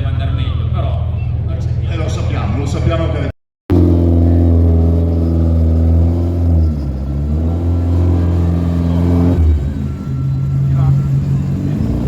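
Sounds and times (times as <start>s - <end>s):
rally car engine running: 2.0s - 12.0s.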